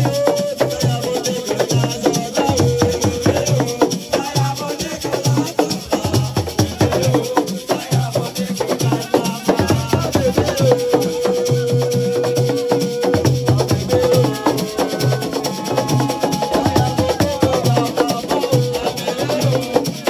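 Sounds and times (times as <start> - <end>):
shaker: 0.0 - 20.0
deep drum beats: 12.6 - 19.7.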